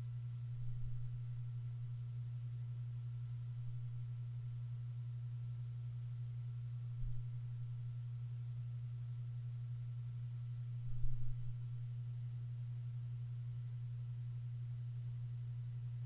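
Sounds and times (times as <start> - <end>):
steady low hum: 0.0 - 16.0
soft low bump: 7.0 - 7.4.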